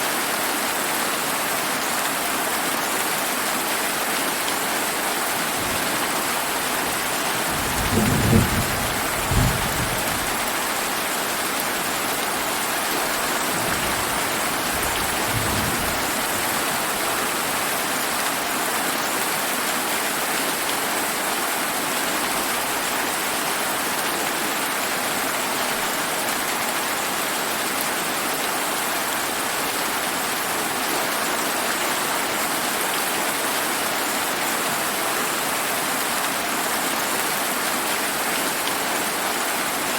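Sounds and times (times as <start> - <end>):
heavy rain: 0.0 - 39.9
thunder rumbling: 7.4 - 10.4, 13.6 - 16.4.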